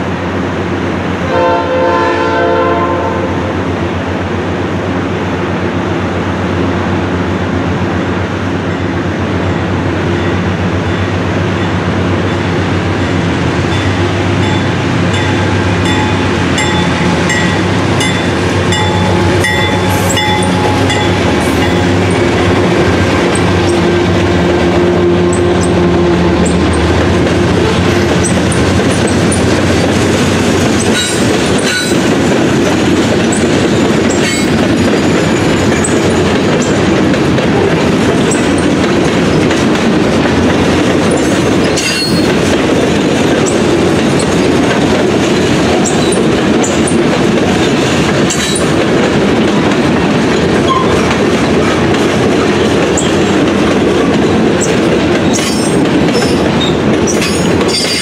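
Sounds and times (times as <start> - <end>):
diesel locomotive engines: 0.0 - 58.0
train cars rumbling past: 0.0 - 58.0
wheels clicking over rail joints: 26.4 - 58.0
wheels squealing and clanking: 41.1 - 42.4, 45.8 - 47.0, 50.6 - 51.2, 54.6 - 58.0.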